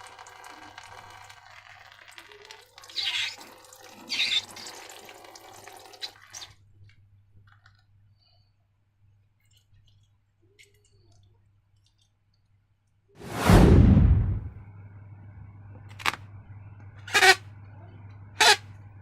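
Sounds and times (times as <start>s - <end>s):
wet slime gushing: 2.8s - 4.8s.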